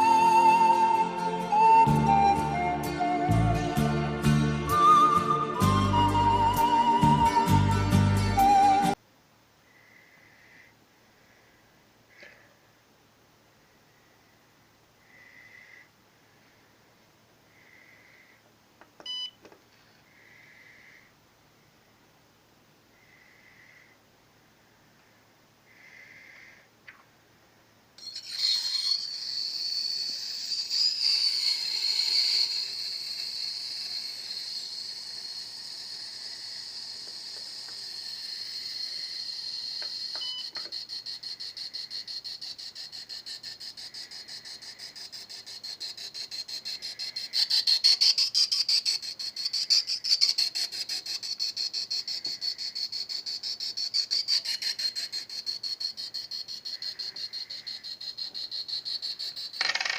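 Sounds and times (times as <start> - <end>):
fast pulsing buzz: 28.0 - 59.6.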